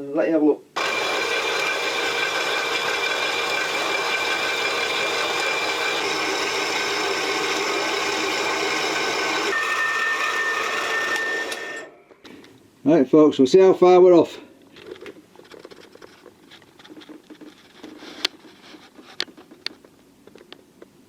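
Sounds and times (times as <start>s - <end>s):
bandsaw cutting steel: 0.8s - 11.9s.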